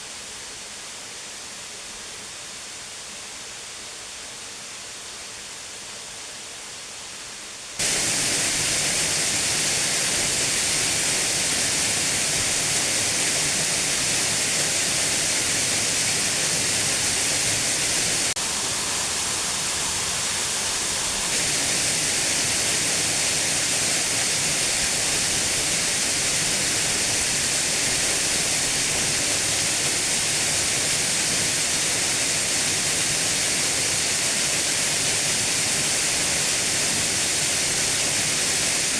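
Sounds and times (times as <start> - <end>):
waterfall rushing: 7.8 - 38.9.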